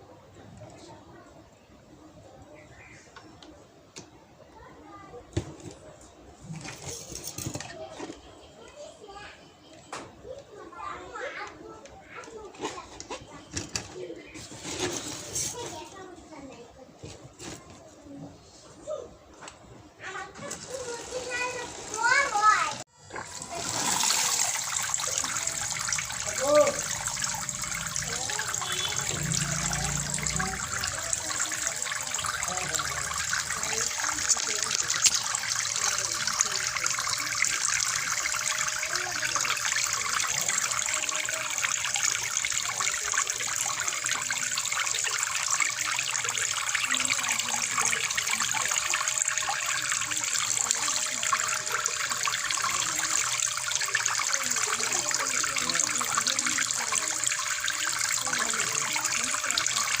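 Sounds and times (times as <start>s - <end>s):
water pouring and splashing: 6.4s - 8.0s, 12.2s - 16.1s, 20.3s - 60.0s.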